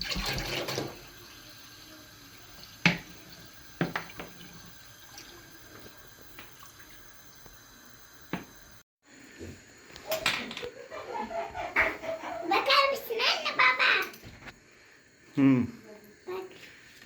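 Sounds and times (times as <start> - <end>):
sharp drips: 0.0 - 8.6.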